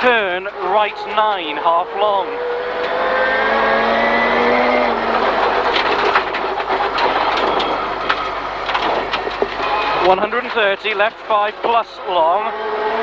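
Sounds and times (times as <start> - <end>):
rally car engine pulling hard: 0.0 - 13.0
road noise roar: 0.0 - 13.0
sharp clicks and knocks: 4.8 - 11.9.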